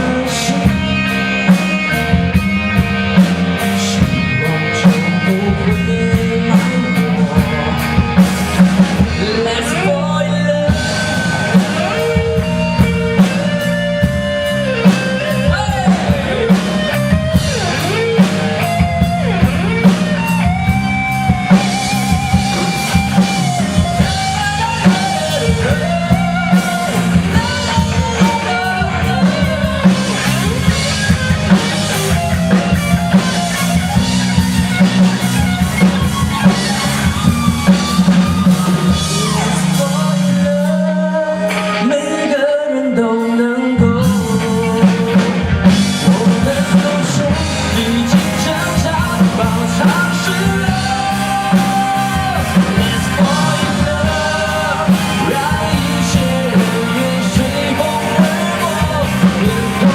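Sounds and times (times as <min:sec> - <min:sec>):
drum kit: 0:00.0 - 0:42.5, 0:43.2 - 0:59.9
bass guitar: 0:00.0 - 0:59.9
electric guitar lead: 0:00.0 - 0:59.9.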